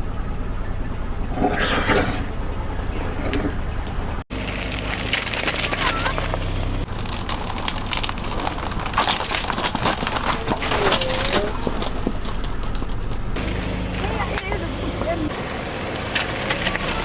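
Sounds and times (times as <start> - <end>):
car engine humming: 3.6 - 7.2, 12.8 - 17.0
tyre crushing brittle objects: 4.3 - 17.0.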